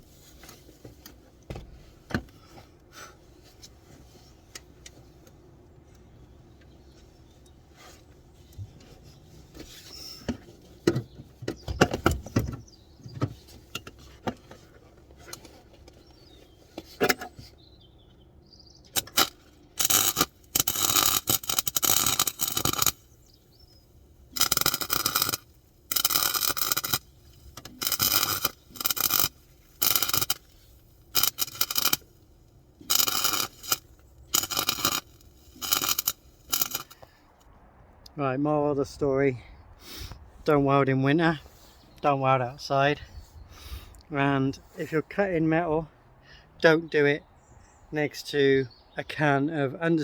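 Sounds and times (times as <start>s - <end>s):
welder bursts: 19.0s - 37.1s.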